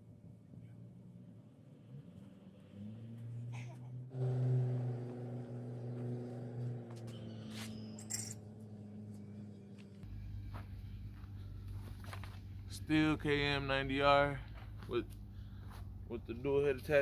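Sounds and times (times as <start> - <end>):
small engine running: 4.1 - 12.5.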